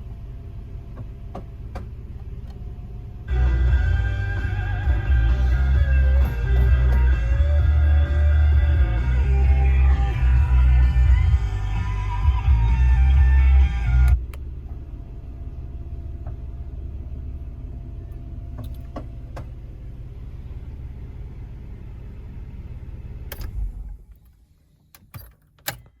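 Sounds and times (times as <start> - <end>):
car engine idling: 0.0 - 25.0
car stereo music: 3.3 - 14.3
light clicks of controls: 14.0 - 14.8.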